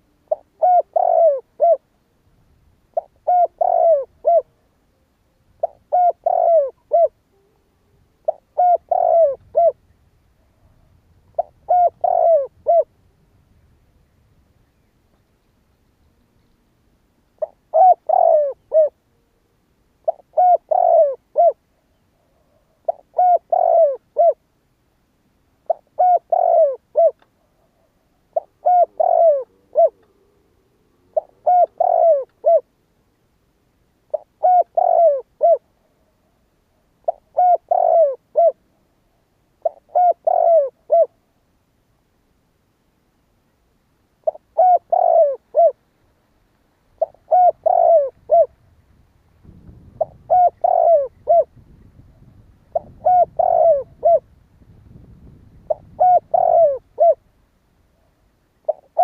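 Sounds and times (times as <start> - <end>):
dove cooing: 0.0 - 2.0, 2.9 - 4.7, 5.6 - 13.0, 17.4 - 19.3, 20.0 - 24.4, 25.6 - 32.8, 34.1 - 36.2, 37.0 - 38.8, 39.6 - 41.2, 44.2 - 45.8, 47.0 - 48.7, 49.5 - 54.4, 55.6 - 57.3, 58.0 - 59.0.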